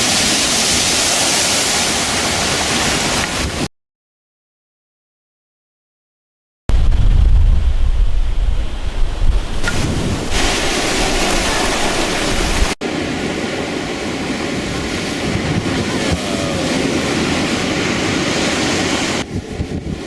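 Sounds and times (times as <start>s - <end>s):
waves: 0.0s - 3.7s, 8.6s - 20.0s
wind: 0.0s - 3.7s, 6.7s - 20.0s.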